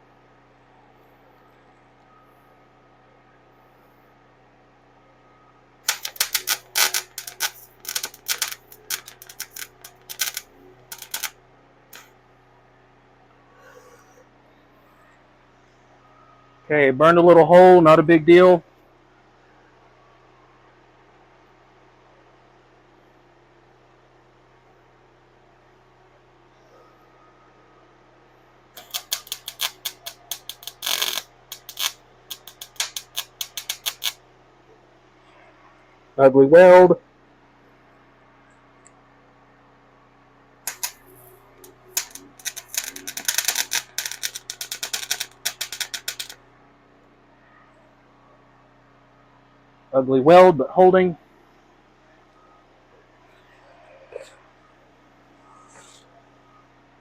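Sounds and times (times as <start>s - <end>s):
faint steady hum: 0.0s - 57.0s
welding arc crackling: 5.9s - 12.1s, 28.8s - 34.2s, 40.7s - 46.4s.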